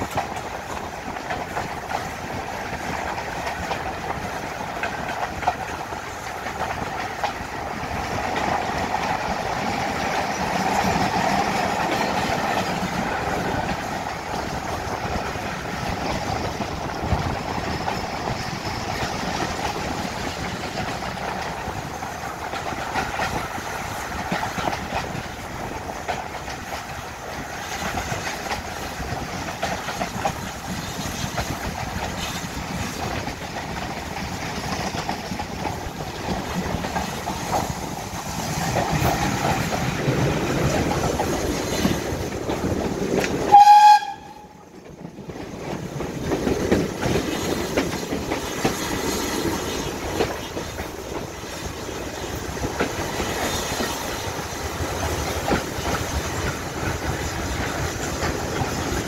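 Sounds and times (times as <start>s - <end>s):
train wheels rumbling and clicking: 0.0s - 59.0s
locomotive horn blast: 43.5s - 44.6s.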